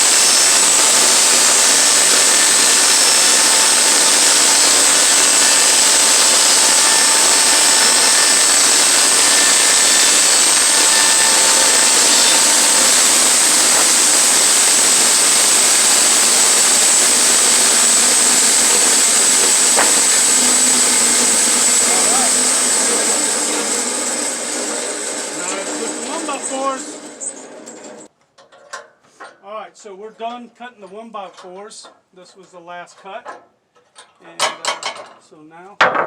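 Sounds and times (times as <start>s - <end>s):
sawmill ripping boards: 0.0s - 28.1s.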